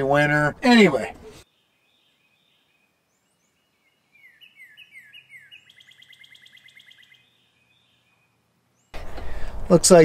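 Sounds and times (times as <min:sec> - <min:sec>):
songbird whistles and trill: 0:01.4 - 0:08.9.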